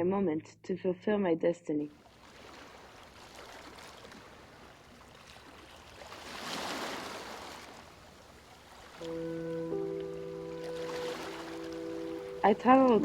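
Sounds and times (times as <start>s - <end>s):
soft water-like rushing: 2.0s - 13.0s
sustained music notes: 9.0s - 13.0s.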